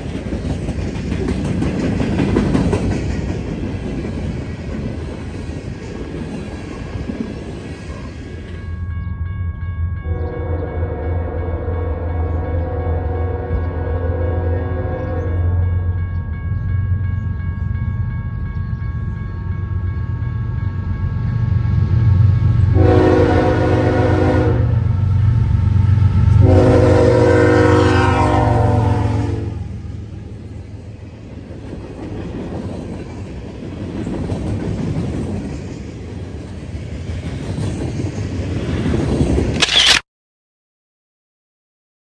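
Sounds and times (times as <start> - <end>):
freight cars rolling on rails: 0.0 - 8.6
diesel locomotive engine rumble: 0.0 - 39.6
train horn blasts: 10.0 - 15.8, 22.7 - 25.2, 26.0 - 29.8.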